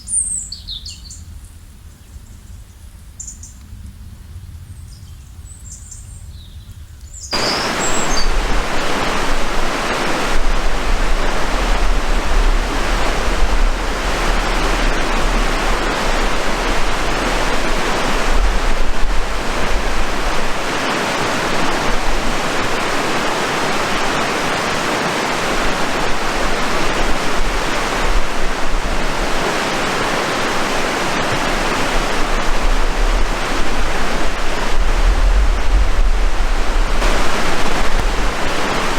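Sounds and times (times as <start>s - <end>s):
rushing water: 7.3s - 38.9s
deep rumble: 7.4s - 23.4s, 25.6s - 38.9s.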